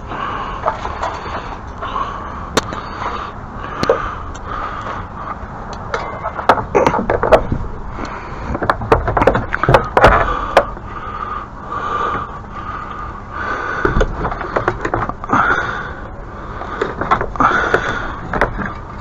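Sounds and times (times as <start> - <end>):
gear knocking and clattering: 5.8 - 10.9, 13.8 - 15.8, 16.6 - 19.0.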